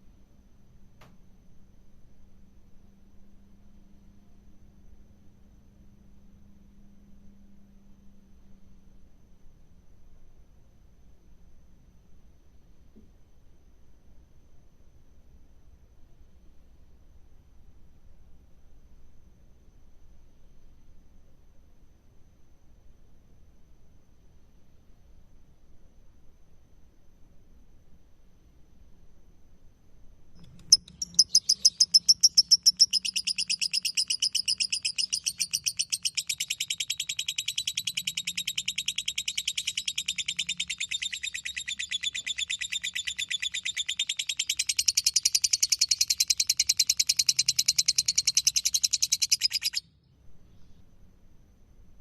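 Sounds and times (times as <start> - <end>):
lovebird chattering trill: 30.4 - 49.8.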